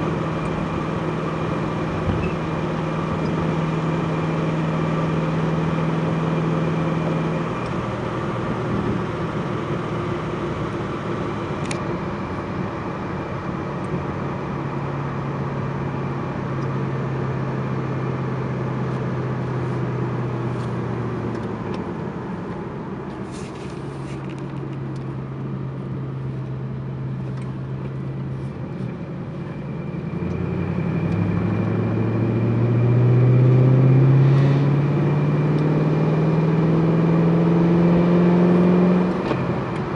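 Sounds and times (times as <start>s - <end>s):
car engine revving: 29.5s - 39.9s.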